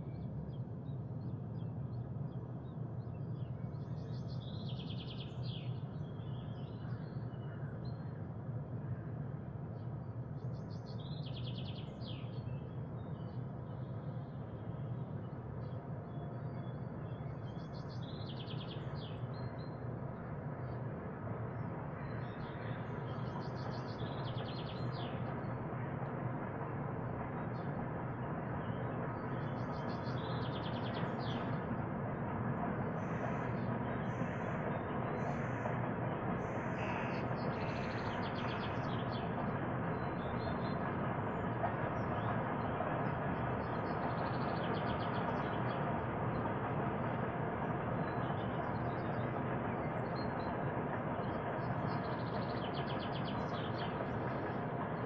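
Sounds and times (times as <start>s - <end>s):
songbird singing: 10.4s - 25.9s, 27.3s - 31.9s, 32.9s - 46.5s, 47.6s - 55.0s.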